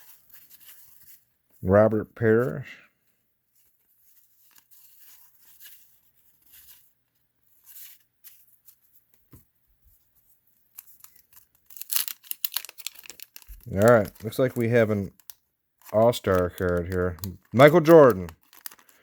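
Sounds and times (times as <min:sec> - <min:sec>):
trading cards flipped by hand: 0:10.6 - 0:19.0.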